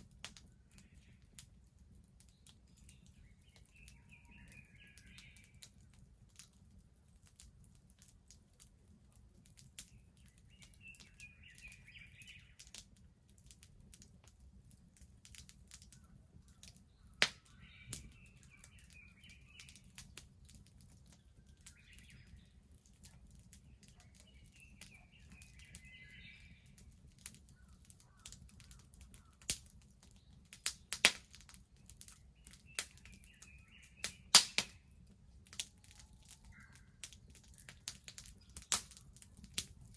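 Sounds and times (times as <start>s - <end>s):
bonfire crackling: 0.0s - 39.9s
fire popping: 0.0s - 39.9s
birds chirping: 0.4s - 1.4s, 2.2s - 6.0s, 9.8s - 12.8s, 15.9s - 39.9s.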